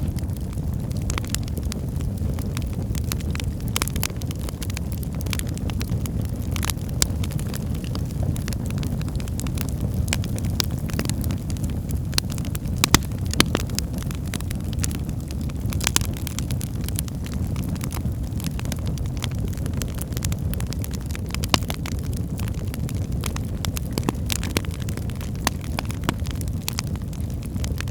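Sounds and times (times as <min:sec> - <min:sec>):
fire crackling in fireplace: 0:00.0 - 0:27.9.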